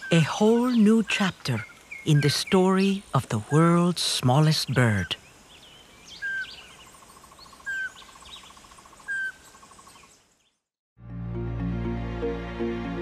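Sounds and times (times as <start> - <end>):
high bird chirps: 4.5 - 10.6
faint fast bird trill: 4.9 - 10.6
background music: 11.0 - 13.0.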